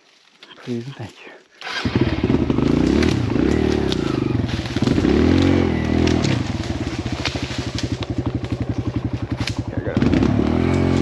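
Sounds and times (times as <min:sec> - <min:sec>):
dirt bike engine revving: 0:01.6 - 0:11.0.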